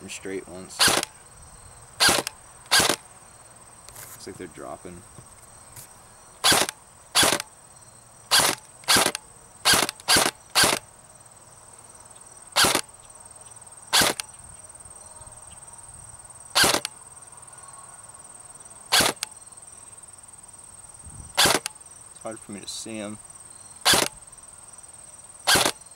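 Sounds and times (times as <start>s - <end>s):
airsoft gun single shots: 0.8s - 1.1s, 2.0s - 3.0s, 6.4s - 7.5s, 8.3s - 10.8s, 12.6s - 12.9s, 14.0s - 14.3s, 16.6s - 16.9s, 18.9s - 19.3s, 21.4s - 21.8s, 23.8s - 24.2s, 25.5s - 25.8s.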